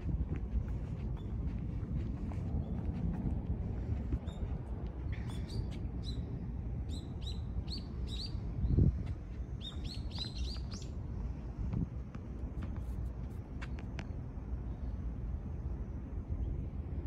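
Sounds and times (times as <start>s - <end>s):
steady low rumble: 0.0s - 17.0s
small bird chirping: 9.6s - 11.0s.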